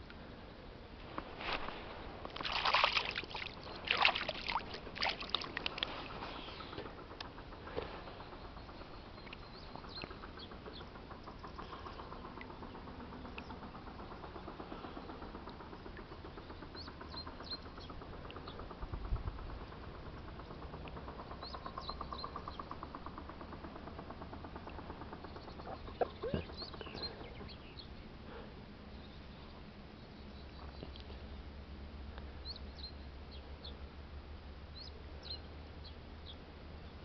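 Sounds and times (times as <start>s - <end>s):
birds chirping and trilling: 7.5s - 18.8s, 24.6s - 31.2s, 34.7s - 37.0s.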